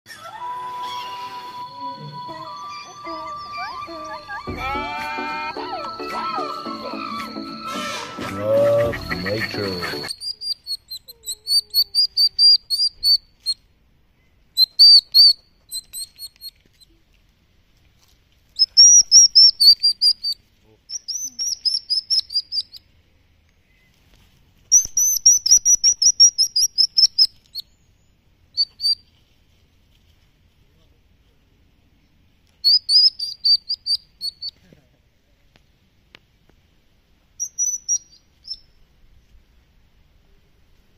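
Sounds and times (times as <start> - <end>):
baby hedgehogs peeping: 8.2 - 17.0, 18.0 - 22.9, 23.6 - 29.3, 32.5 - 34.6, 37.3 - 38.9.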